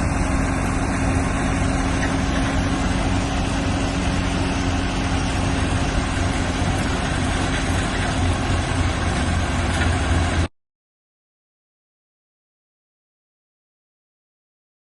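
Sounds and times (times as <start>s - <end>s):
diesel engine running: 0.0s - 10.5s.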